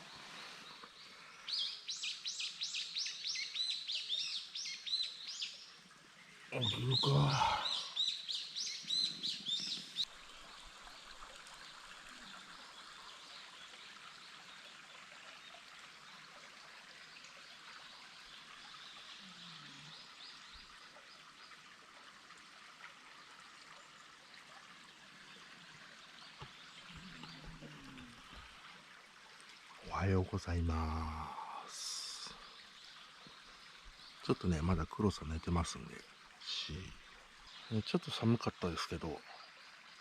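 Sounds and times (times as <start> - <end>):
flowing stream water: 0.0 - 40.0
distant bird chirps: 6.3 - 10.0.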